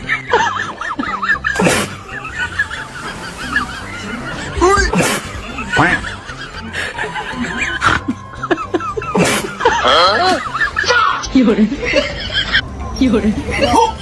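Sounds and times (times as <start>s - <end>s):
snickering laughter: 0.0s - 10.9s.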